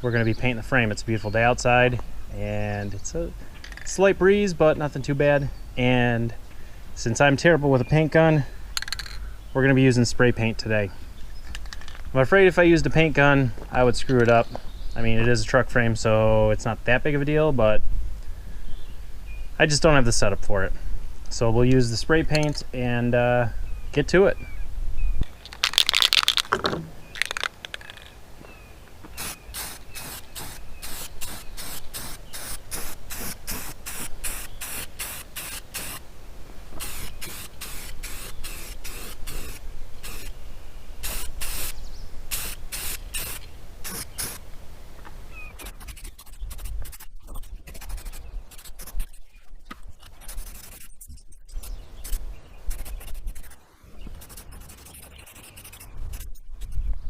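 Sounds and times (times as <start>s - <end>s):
spray paint can hissing: 25.4s - 28.1s.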